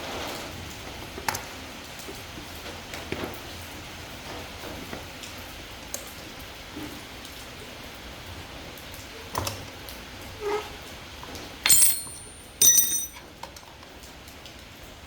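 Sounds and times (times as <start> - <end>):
metallic clanks with ringing: 11.6 - 13.2.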